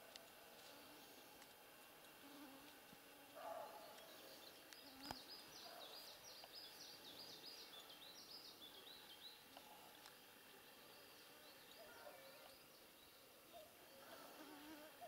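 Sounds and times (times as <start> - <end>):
faint bird song: 3.3 - 15.0.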